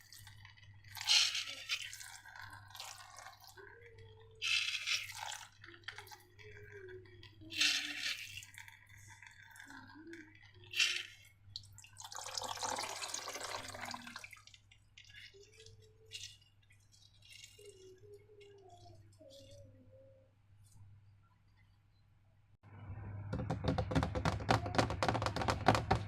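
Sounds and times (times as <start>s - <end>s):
long wet squish: 0.0s - 3.8s
slime dripping and squelching: 0.0s - 19.6s.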